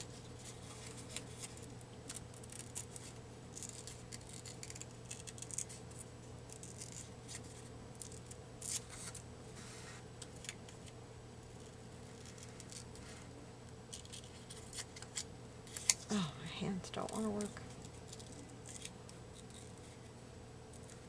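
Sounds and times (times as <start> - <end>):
scissors cutting paper: 0.0 - 9.2, 13.9 - 16.1, 17.0 - 20.1
steady low hum: 0.0 - 21.0.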